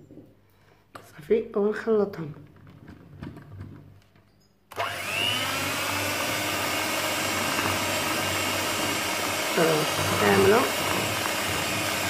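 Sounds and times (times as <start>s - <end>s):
electric kitchen mixer whining: 4.7s - 12.0s.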